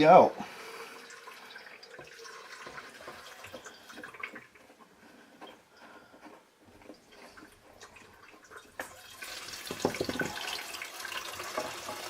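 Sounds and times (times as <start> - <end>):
gasoline pouring into tank: 0.4 - 4.6, 7.1 - 12.0.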